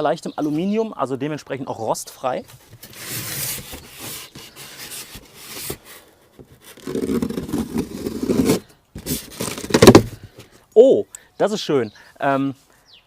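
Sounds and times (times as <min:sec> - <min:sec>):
cardboard rustling and scraping: 0:02.4 - 0:10.5
longer scraping rub: 0:06.6 - 0:09.7.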